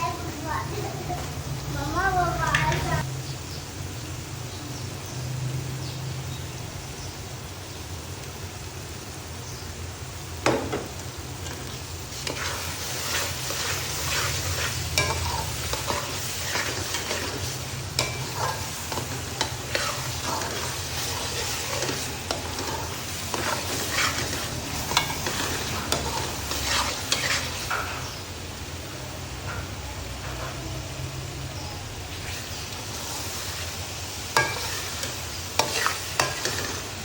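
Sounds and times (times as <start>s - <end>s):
chicken sizzling in oil: 0.0s - 37.0s
spoon scraping against pan: 11.4s - 28.2s, 32.2s - 37.0s.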